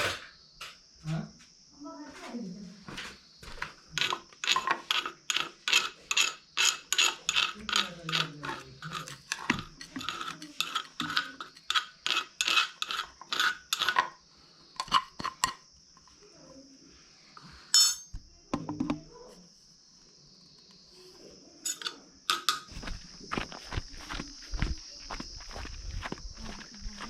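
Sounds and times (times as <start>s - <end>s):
pepper grinding by hand: 3.9s - 14.2s.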